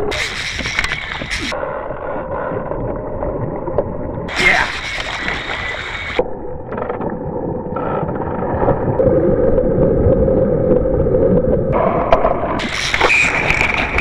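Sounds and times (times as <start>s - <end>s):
water around kayak: 0.0s - 14.0s
hissy water splash: 4.3s - 6.2s.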